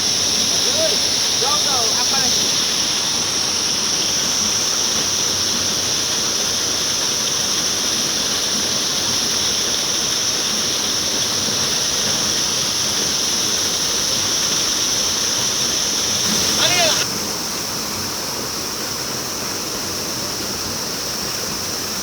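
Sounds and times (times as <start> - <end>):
river water rushing: 0.0 - 7.8, 10.0 - 19.4
constant high hiss: 0.0 - 22.0.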